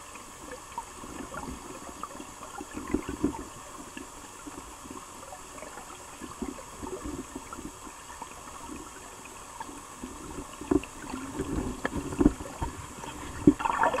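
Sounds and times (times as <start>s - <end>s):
river water gurgling: 0.0s - 14.0s
low knocks and pops: 10.6s - 12.8s.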